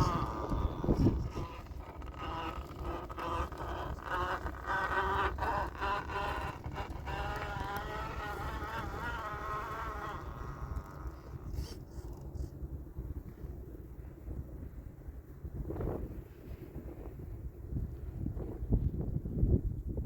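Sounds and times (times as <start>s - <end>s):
electric motor and gears whining: 0.0s - 12.6s.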